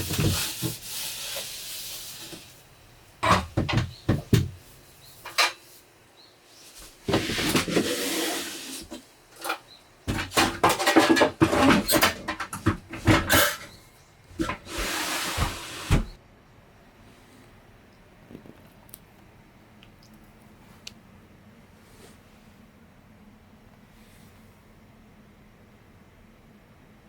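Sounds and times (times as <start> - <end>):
rustling noise: 0.0 - 2.7, 14.3 - 16.2, 21.7 - 22.7
objects knocking and clattering: 3.2 - 4.6, 8.9 - 14.7.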